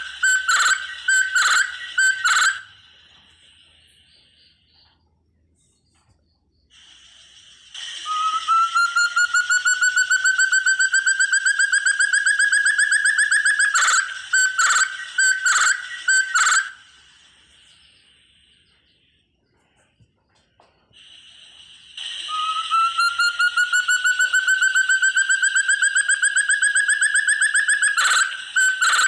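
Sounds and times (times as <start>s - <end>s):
bird whistling calls: 0.0s - 3.6s, 7.8s - 18.6s, 22.0s - 29.0s.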